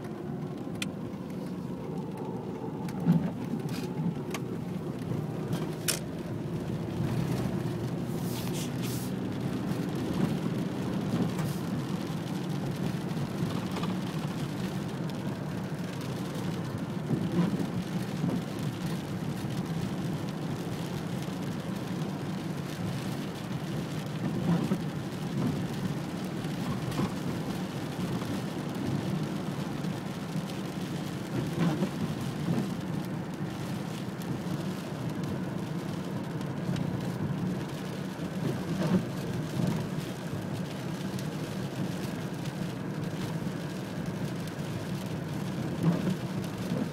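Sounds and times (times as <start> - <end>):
low continuous rumble: 0.0 - 46.9
steady rain: 0.0 - 46.9.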